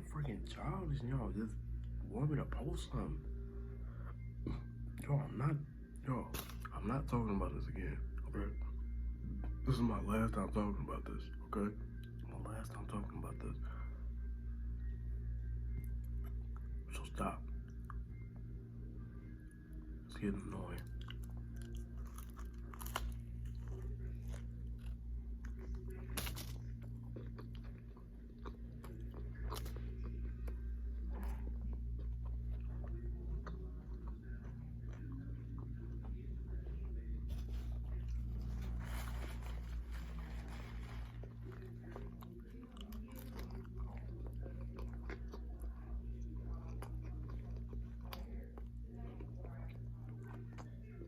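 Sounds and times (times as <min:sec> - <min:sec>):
steady low hum: 0:00.0 - 0:51.0
chewing and crunching food: 0:06.0 - 0:13.9, 0:15.7 - 0:51.0
small crunches: 0:21.0 - 0:29.8, 0:37.3 - 0:44.0.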